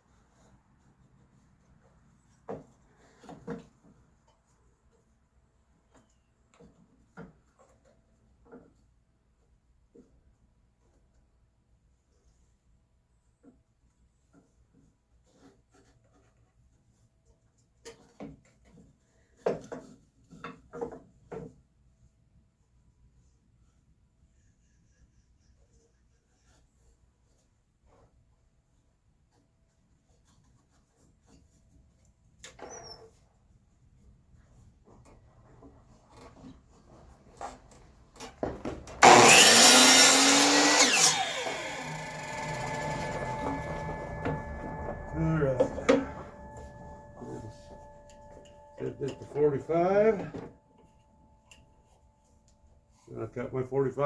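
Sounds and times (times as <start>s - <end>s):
electric power saw running: 39.0s - 50.4s.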